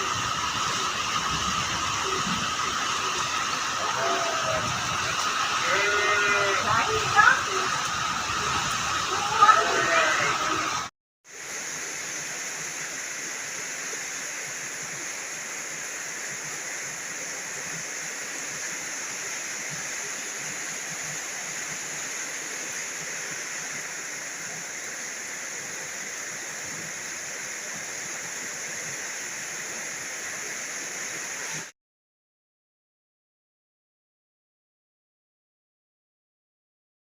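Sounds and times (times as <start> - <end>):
heavy rain falling: 0.0 - 31.7.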